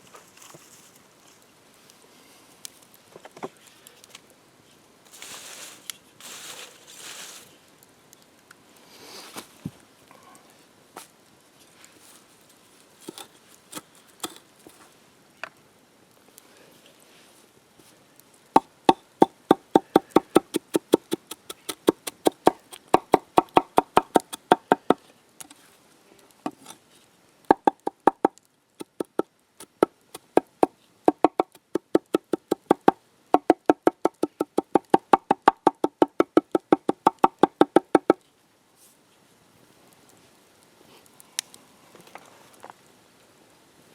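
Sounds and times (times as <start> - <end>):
knife chopping on wooden board: 19.2 - 25.0, 31.1 - 38.2.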